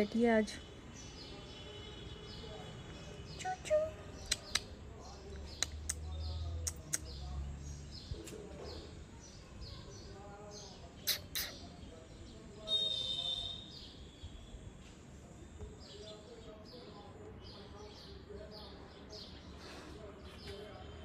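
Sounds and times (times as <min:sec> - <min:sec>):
small birds chirping: 0:00.0 - 0:21.0
sharp clicks: 0:04.2 - 0:04.7, 0:05.4 - 0:07.2.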